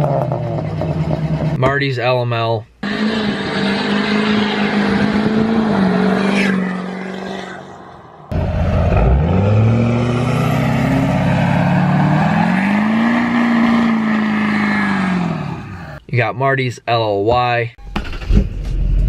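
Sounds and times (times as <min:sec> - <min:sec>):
engine revving: 0:02.8 - 0:16.0
loud vehicle engine running: 0:08.2 - 0:14.2.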